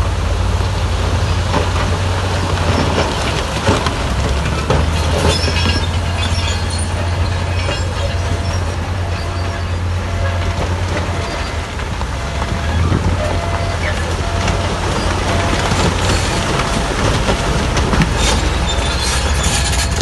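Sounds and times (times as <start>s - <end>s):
bulldozer engine droning: 0.0s - 20.0s
steel tracks clanking: 0.0s - 20.0s
short high squeak: 5.3s - 10.4s, 18.2s - 20.0s.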